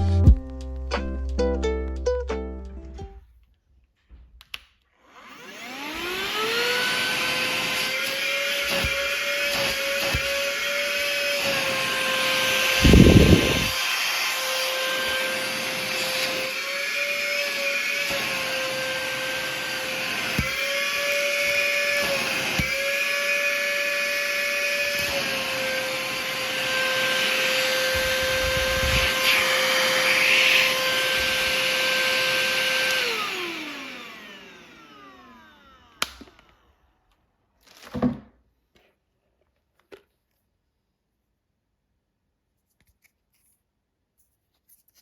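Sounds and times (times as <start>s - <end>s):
handheld vacuum cleaner motor whine: 5.0s - 37.0s.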